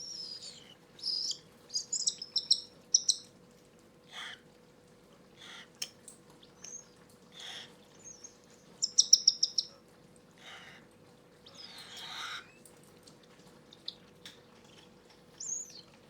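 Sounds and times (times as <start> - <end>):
chicks squeaking: 0.0 - 3.2, 8.1 - 9.7
faint steady hum: 0.0 - 16.0.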